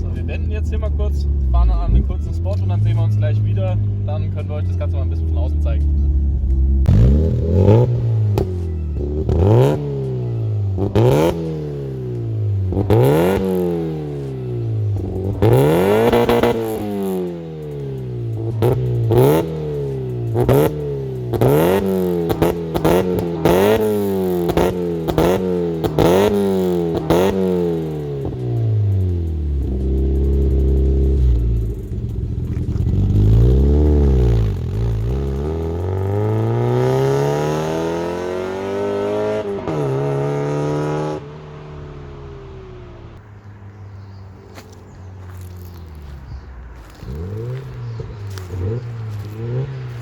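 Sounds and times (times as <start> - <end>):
car engine revving: 0.0 - 50.0
exhaust pops and crackles: 10.8 - 37.3, 44.6 - 50.0.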